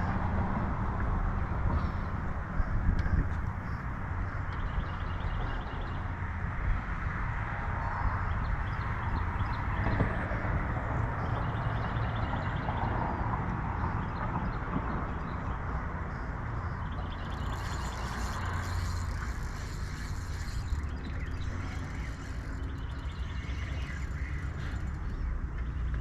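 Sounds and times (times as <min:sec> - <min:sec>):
wind buffeting microphone: 0:00.0 - 0:25.6
faint rapid ticking: 0:17.0 - 0:25.5.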